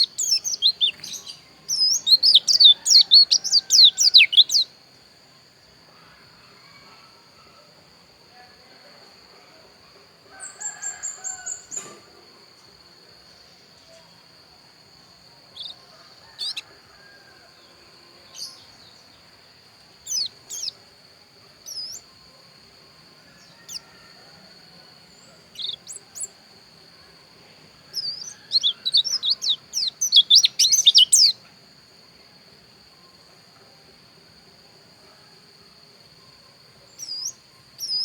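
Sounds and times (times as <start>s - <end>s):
bird chirping and twittering: 0.0s - 4.7s, 15.6s - 16.7s, 20.0s - 20.8s, 21.7s - 22.0s, 25.2s - 26.3s, 27.9s - 31.4s, 37.0s - 38.0s.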